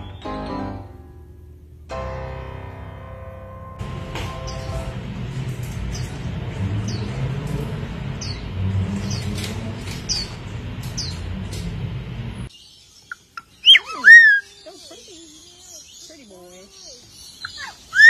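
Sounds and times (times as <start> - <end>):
low rumbling background: 0.8 - 12.5
bird chirping: 6.8 - 7.2, 8.1 - 11.3, 12.4 - 18.0.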